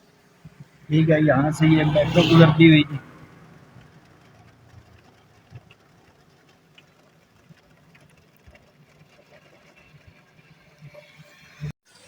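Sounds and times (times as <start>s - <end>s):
light rain pattering: 2.8s - 11.5s.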